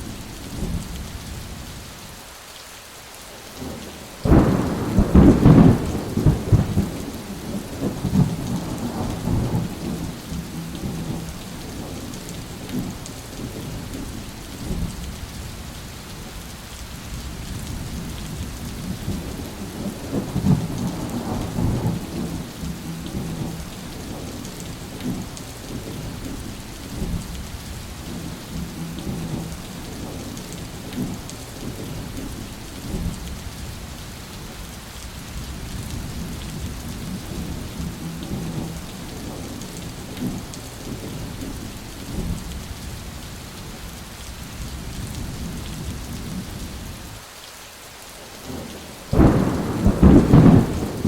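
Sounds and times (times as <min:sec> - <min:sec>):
heavy rain falling: 0:00.0 - 0:51.0
thunder rumbling: 0:03.6 - 0:15.0, 0:17.6 - 0:33.2, 0:35.6 - 0:42.4, 0:48.4 - 0:51.0.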